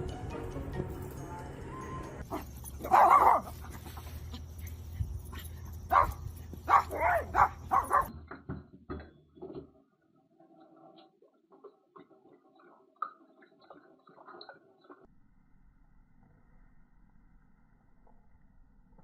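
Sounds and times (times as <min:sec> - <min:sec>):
dog barking: 0:02.3 - 0:03.8, 0:05.3 - 0:08.1.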